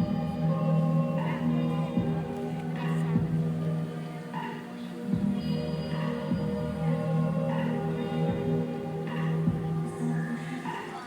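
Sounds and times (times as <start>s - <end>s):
soft low beat: 0.0s - 3.8s, 5.1s - 5.6s, 6.2s - 6.9s, 7.6s - 10.0s
low droning music: 0.0s - 11.0s.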